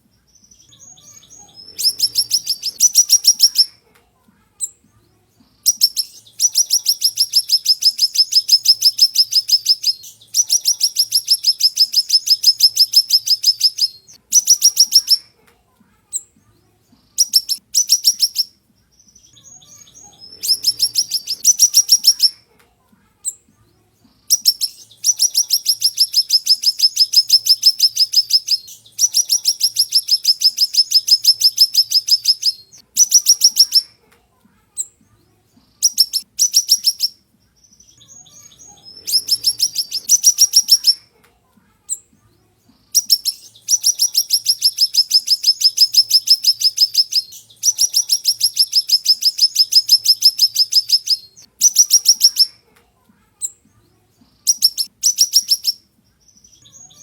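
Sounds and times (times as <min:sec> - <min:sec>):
songbird trilling: 0:00.4 - 0:03.7, 0:05.7 - 0:15.2, 0:17.2 - 0:18.5, 0:19.1 - 0:22.4, 0:24.3 - 0:33.9, 0:35.8 - 0:41.0, 0:43.0 - 0:52.5, 0:54.4 - 0:57.0.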